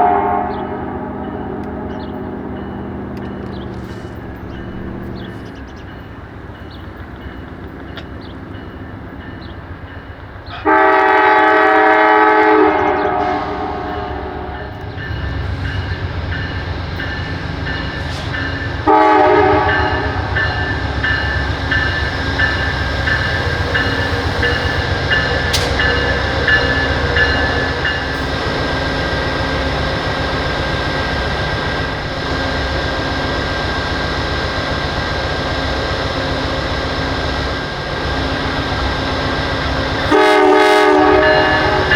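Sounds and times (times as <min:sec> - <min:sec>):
locomotive air horn blasts: 0:00.0 - 0:02.5, 0:10.6 - 0:14.9, 0:18.0 - 0:20.8, 0:39.9 - 0:41.9
train rumbling past: 0:00.0 - 0:41.9.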